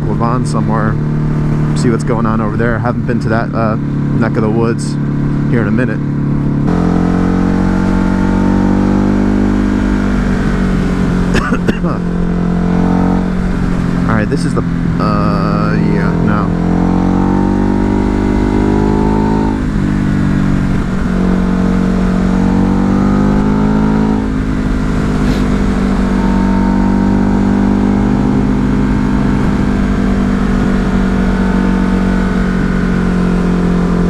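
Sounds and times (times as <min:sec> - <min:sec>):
motorcycle engine shifting gears: 0:00.0 - 0:34.0
wind noise: 0:07.6 - 0:15.3, 0:16.8 - 0:34.0.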